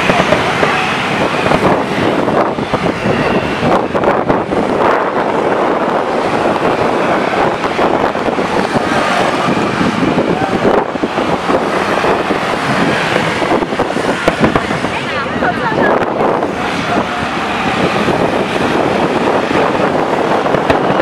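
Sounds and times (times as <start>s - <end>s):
fireworks crackling and popping: 0.0s - 15.8s
crowd chatter: 0.0s - 21.0s
wind on microphone: 0.0s - 21.0s.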